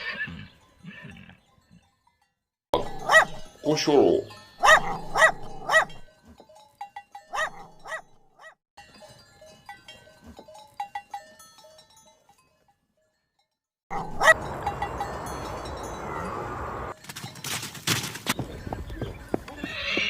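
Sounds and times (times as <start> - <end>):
dog barking: 2.9 - 3.5, 4.6 - 6.0, 7.3 - 8.6, 13.9 - 14.5.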